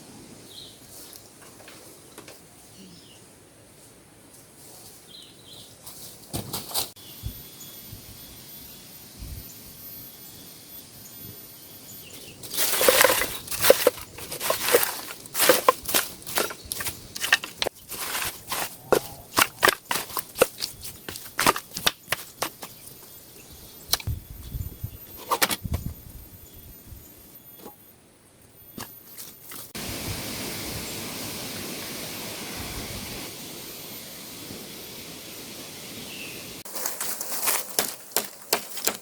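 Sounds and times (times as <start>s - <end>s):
faint steady high tone: 7.0s - 13.8s
vegetation snapping and rustling: 12.4s - 23.1s.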